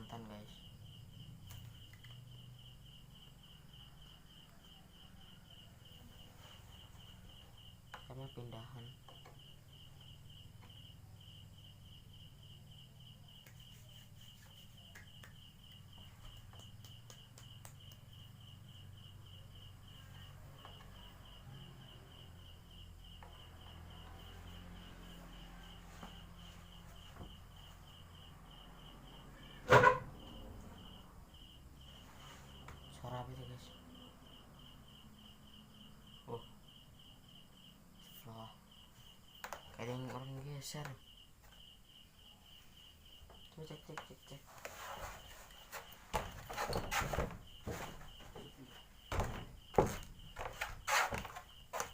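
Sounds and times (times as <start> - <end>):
crickets chirping: 0.0 - 51.9.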